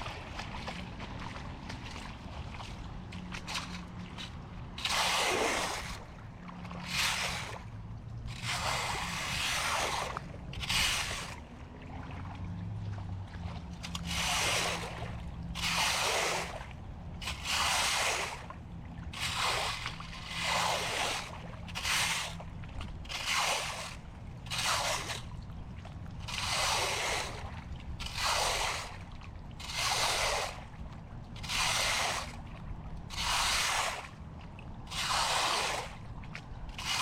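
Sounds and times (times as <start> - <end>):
low steady hum: 0.0 - 4.9, 5.7 - 9.3, 10.0 - 15.7, 16.3 - 17.5, 18.2 - 20.3, 20.9 - 21.8
floodwater splashing: 0.0 - 37.0.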